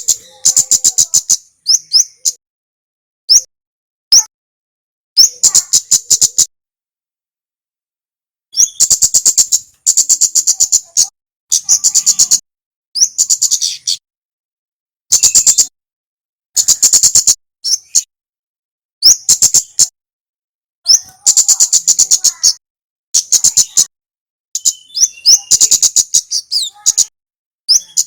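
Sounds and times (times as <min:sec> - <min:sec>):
songbird whistling and rattling chirps: 0:00.0 - 0:02.4, 0:03.3 - 0:03.5, 0:05.2 - 0:06.5, 0:08.5 - 0:12.4, 0:13.0 - 0:14.0, 0:15.1 - 0:15.7, 0:16.6 - 0:18.1, 0:19.0 - 0:19.9, 0:20.9 - 0:22.6, 0:23.2 - 0:23.9, 0:24.6 - 0:27.1, 0:27.7 - 0:28.0.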